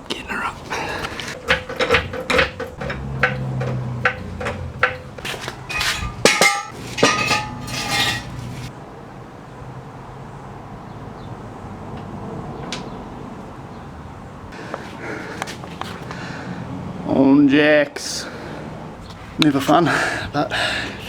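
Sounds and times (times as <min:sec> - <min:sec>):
floor jack pumping: 0:00.8 - 0:08.7
steel axle stands clanking: 0:01.0 - 0:08.7.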